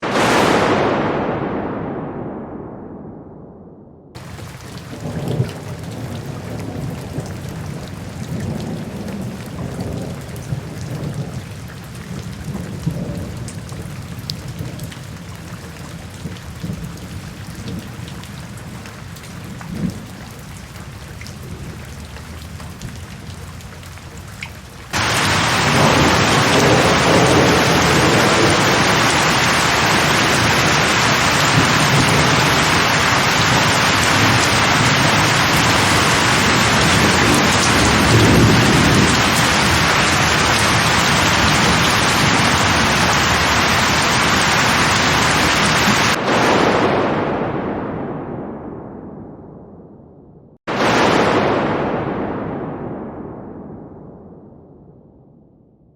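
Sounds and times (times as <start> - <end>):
rolling thunder rumbles: 0.0 - 55.7
light rain: 4.2 - 47.5
heavy rain: 4.2 - 47.7, 50.7 - 52.6.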